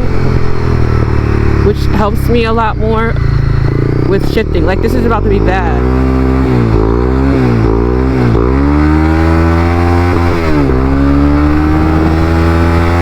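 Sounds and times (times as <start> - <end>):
motorcycle engine accelerating: 0.0 - 13.0
rider talking: 1.5 - 6.1.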